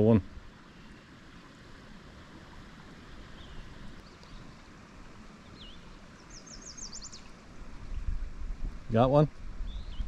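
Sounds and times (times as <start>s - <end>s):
open-air background hiss: 0.0s - 10.0s
small songbird chirping: 3.3s - 4.7s, 5.4s - 8.2s, 9.6s - 10.0s.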